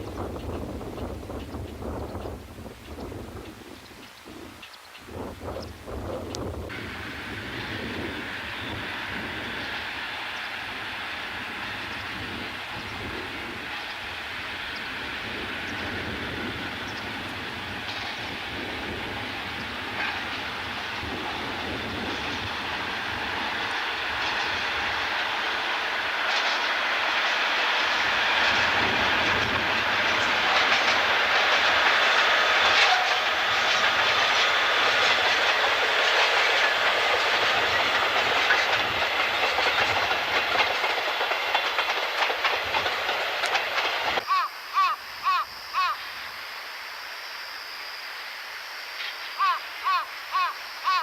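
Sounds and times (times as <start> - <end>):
wind buffeting microphone: 0.0 - 44.2
train passing: 0.0 - 51.0
wheels clicking over rail joints: 15.6 - 44.2.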